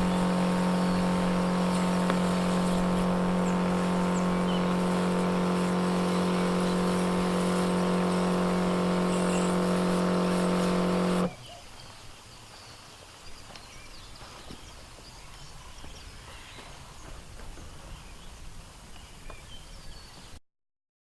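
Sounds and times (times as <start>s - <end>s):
electric pump humming: 0.0s - 11.3s
faint bird chirps: 11.3s - 16.7s.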